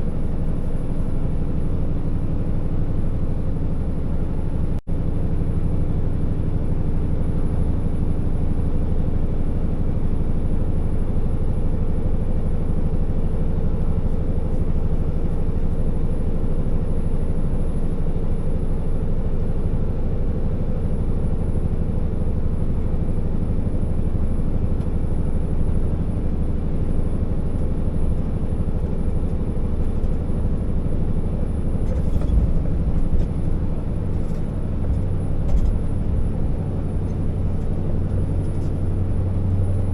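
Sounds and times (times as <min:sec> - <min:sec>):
diesel truck engine running: 0:00.0 - 0:39.9
road noise: 0:29.0 - 0:39.9.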